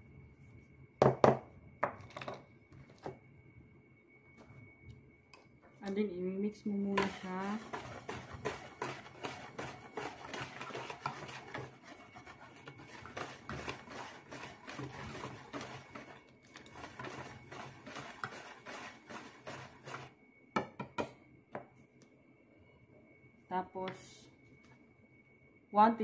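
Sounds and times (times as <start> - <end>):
whisk scratching in plastic bowl: 6.9 - 20.2.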